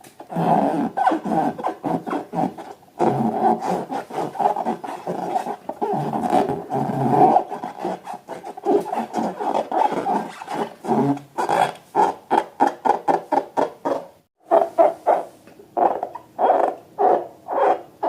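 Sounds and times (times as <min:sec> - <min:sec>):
rubber balloons squeezed: 0:00.3 - 0:14.0.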